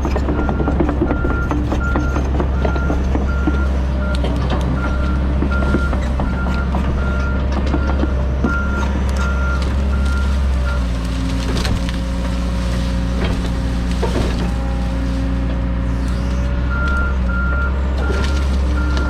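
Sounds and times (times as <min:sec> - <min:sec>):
excavator diesel engine running: 0:00.0 - 0:19.0
knocks and cracks: 0:00.1 - 0:15.0.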